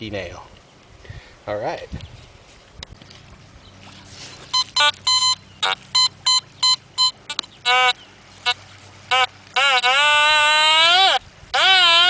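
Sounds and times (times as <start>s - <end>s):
metal detector wavering low tone: 4.5s - 7.4s
metal detector short high beeps: 4.5s - 7.5s.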